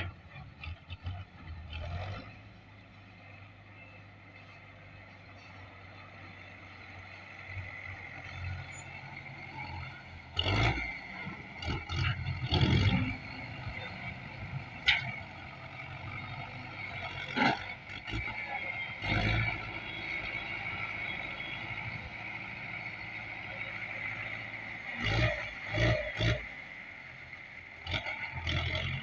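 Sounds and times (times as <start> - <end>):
diesel tractor engine running: 0.0 - 29.0.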